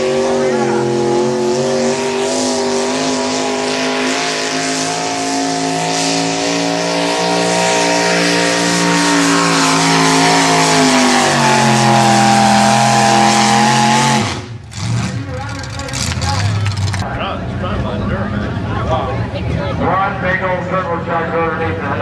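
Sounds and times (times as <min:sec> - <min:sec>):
tractor engine at high revs: 0:00.0 - 0:17.1.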